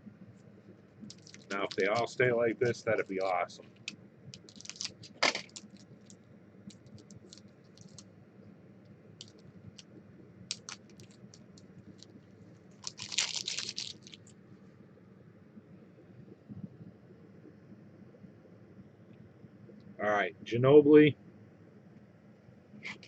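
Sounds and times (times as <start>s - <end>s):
foil wrapper crinkling: 1.1s - 8.0s, 9.2s - 9.9s, 10.5s - 12.2s, 12.8s - 14.3s.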